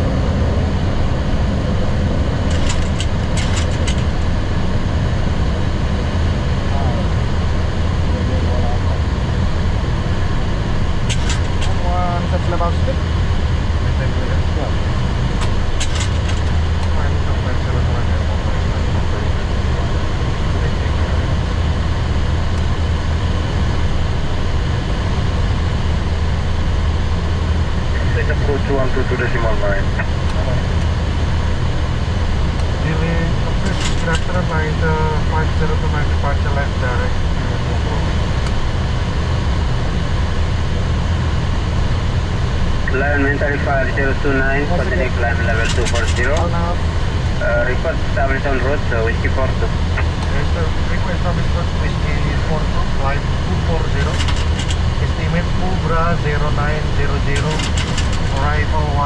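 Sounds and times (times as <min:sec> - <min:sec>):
air-conditioning noise: 0:00.0 - 0:59.0
aircraft engine and airflow rumble: 0:00.0 - 0:59.0
low hum: 0:00.0 - 0:59.0.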